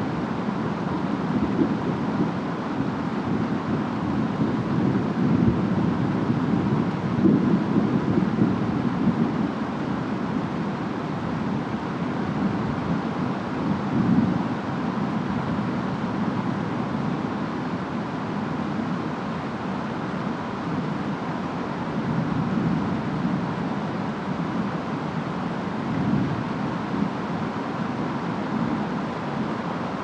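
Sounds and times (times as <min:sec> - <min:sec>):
steady rain: 0:00.0 - 0:30.0
wind noise: 0:00.0 - 0:30.0.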